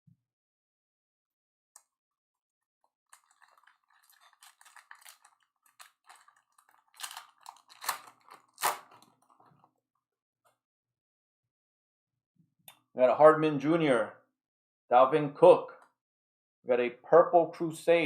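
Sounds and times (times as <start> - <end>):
foil pack tearing and crinkling: 3.1 - 9.5.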